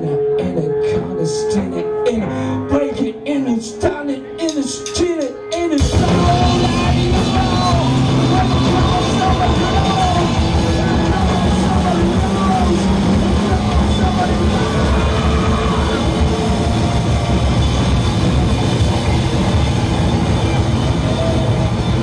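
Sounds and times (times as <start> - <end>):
bass guitars: 0.0 - 22.0
electric guitars: 0.0 - 22.0
drums: 4.4 - 22.0.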